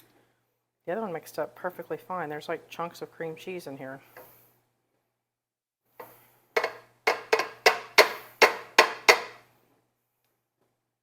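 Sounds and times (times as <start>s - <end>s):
utensil knocking on mixing bowl: 6.6s - 9.4s.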